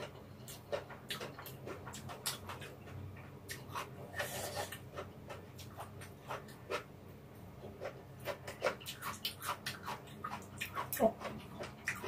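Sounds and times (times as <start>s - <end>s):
chewing clicking mouth sounds: 0.4s - 3.9s, 7.8s - 12.0s.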